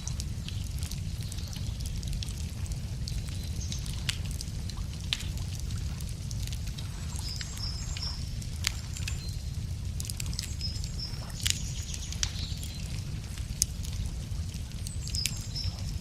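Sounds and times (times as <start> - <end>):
wood fire crackling: 0.0 - 16.0
small birds chirping: 0.4 - 2.3, 3.0 - 4.4, 6.6 - 16.0.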